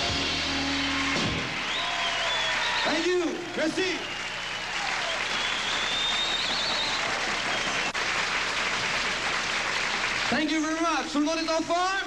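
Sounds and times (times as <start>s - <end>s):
audience applauding: 0.3s - 12.0s
high whistle: 0.6s - 3.1s, 4.0s - 8.0s.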